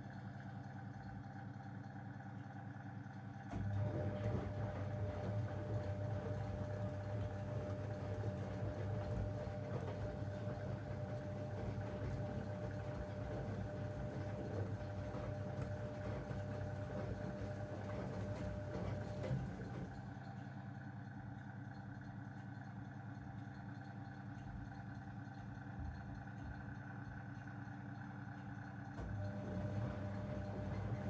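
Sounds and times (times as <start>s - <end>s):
washing machine drum motor whining: 3.6s - 20.1s, 29.0s - 31.0s.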